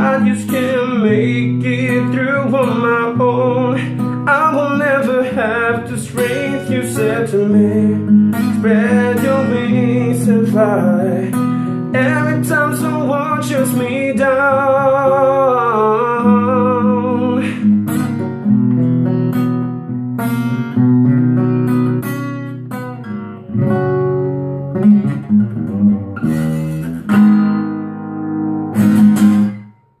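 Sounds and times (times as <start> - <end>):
person singing with vibrato: 0.0 - 17.8
acoustic guitar chords: 0.0 - 30.0.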